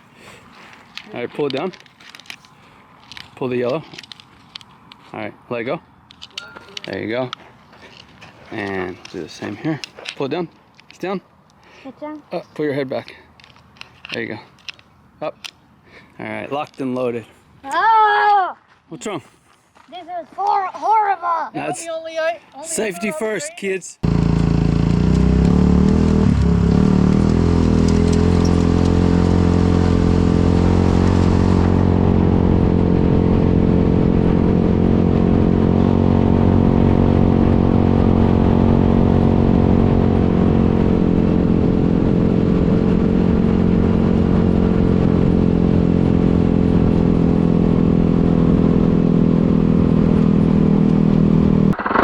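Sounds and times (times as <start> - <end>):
small engine running steadily: 24.0 - 52.0.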